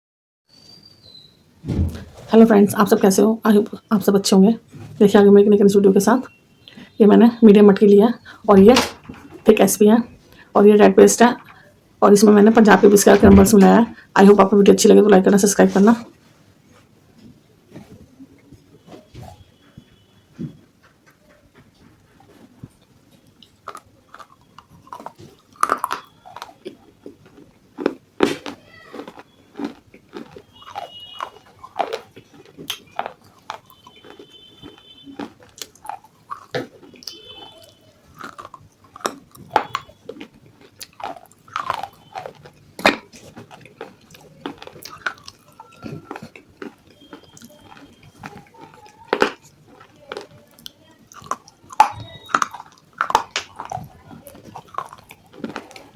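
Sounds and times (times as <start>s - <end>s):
person chewing: 8.2s - 14.7s, 21.6s - 55.9s
crunching of baked clay: 21.1s - 55.9s.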